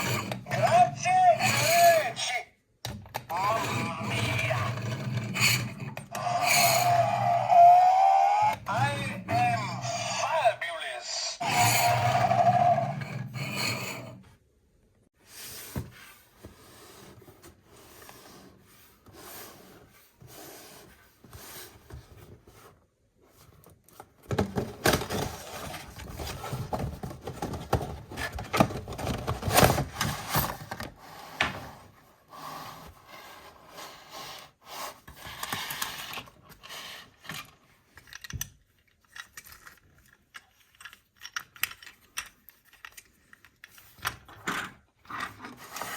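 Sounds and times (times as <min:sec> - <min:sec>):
hands handling toys and packaging: 0:20.8 - 0:31.0, 0:35.4 - 0:45.9.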